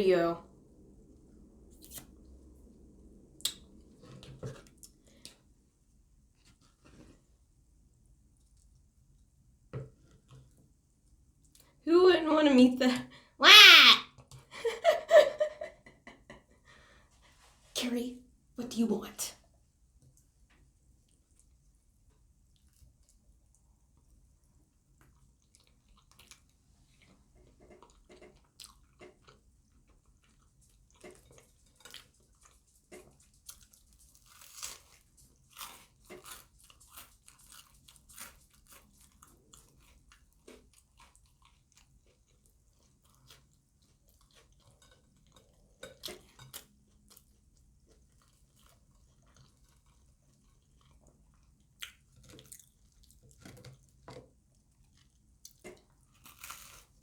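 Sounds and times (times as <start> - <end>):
person chewing with wet smacks: 3.4 - 5.5, 20.0 - 57.0.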